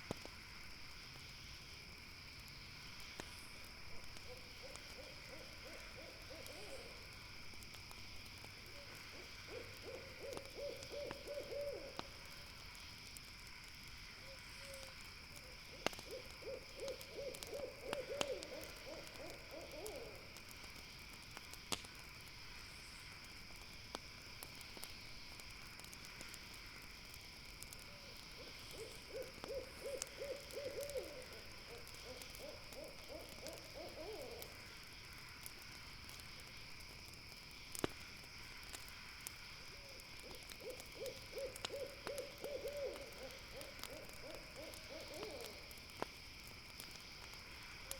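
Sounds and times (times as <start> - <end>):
campfire crackling pops: 0.0 - 47.9
night insects chorus: 0.0 - 47.9
owl hooting: 4.3 - 7.0, 8.8 - 12.0, 15.8 - 20.2, 28.6 - 34.6, 39.8 - 45.6.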